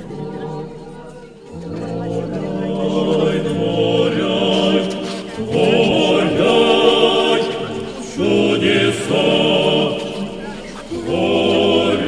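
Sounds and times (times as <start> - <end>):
group of voices singing a hymn: 0.0 - 12.0.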